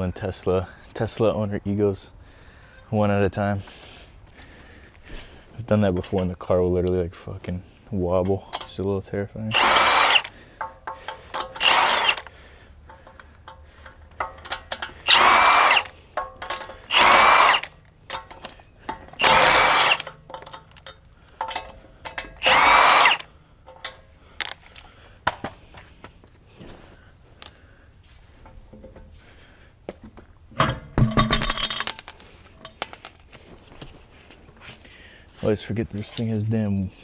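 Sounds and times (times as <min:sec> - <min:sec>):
impact wrench bursts: 0:09.5 - 0:23.3
small metal clinks: 0:09.5 - 0:25.6, 0:27.4 - 0:27.8, 0:30.6 - 0:33.5, 0:34.4 - 0:35.0.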